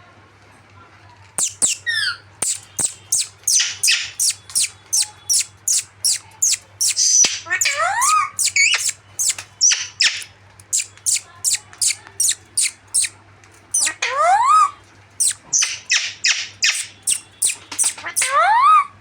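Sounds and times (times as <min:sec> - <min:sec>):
parrots screeching: 0:01.4 - 0:13.1, 0:13.8 - 0:18.8.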